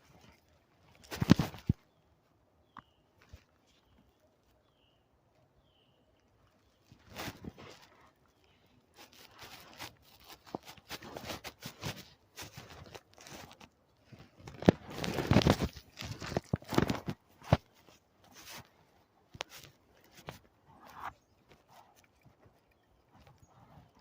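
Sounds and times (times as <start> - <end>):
crunching and crinkling rustles: 0.0 - 24.0.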